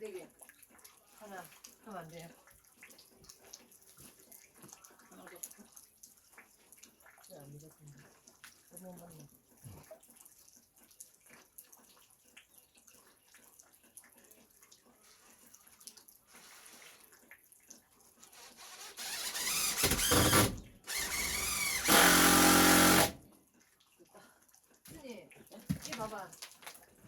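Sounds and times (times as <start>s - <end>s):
power tool motor running: 18.8s - 23.2s.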